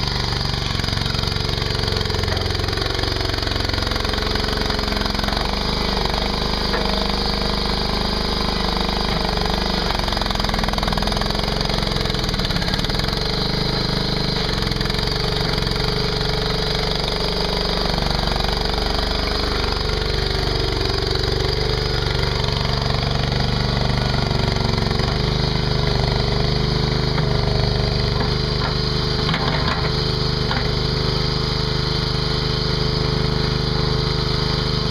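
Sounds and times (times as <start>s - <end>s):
skid steer engine running: 0.0s - 34.9s.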